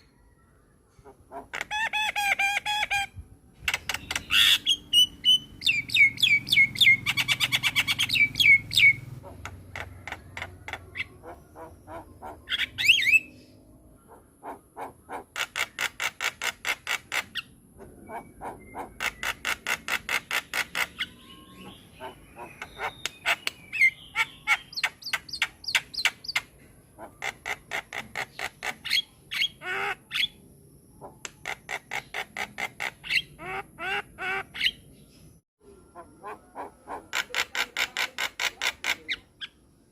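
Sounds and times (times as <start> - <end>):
bird calling with rattling clicks: 3.6 - 4.6, 22.5 - 23.6, 31.2 - 32.8.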